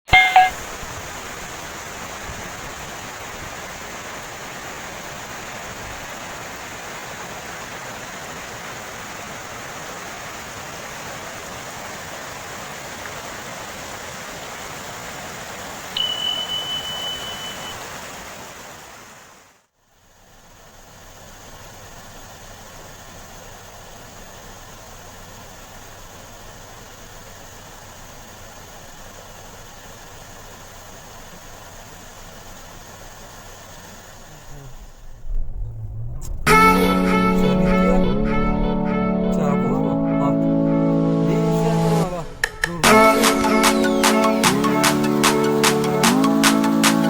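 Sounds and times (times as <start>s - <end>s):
electronic beep: 0.1s - 0.6s, 16.0s - 17.8s
waterfall rushing: 27.7s - 47.0s.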